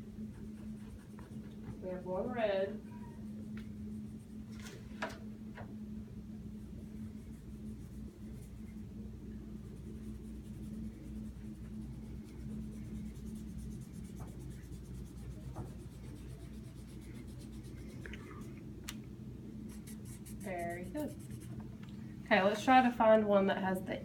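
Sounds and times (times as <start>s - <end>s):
colouring strokes on paper: 0.0s - 2.2s, 6.6s - 8.9s, 9.5s - 18.5s, 19.7s - 21.6s
steady low hum: 0.0s - 24.0s.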